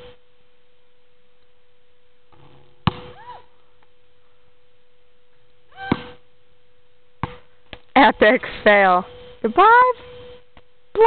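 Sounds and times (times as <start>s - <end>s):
faint steady tone: 0.0s - 11.0s
basketball impact: 2.3s - 3.3s, 5.8s - 6.2s, 7.2s - 7.5s.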